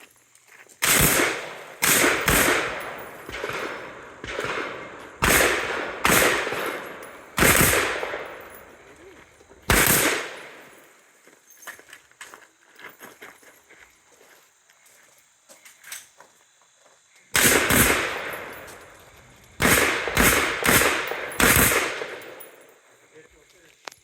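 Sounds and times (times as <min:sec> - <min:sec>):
rifle shots echoing: 0:00.8 - 0:08.9, 0:09.7 - 0:10.8, 0:17.4 - 0:19.0, 0:19.6 - 0:22.7.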